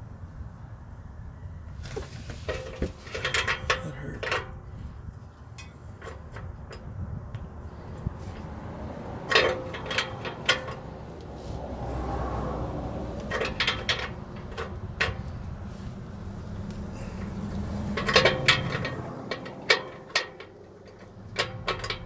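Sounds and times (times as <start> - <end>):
metal tools clinking and scraping: 2.3 - 4.8, 9.2 - 11.0, 13.2 - 16.0, 16.8 - 22.0.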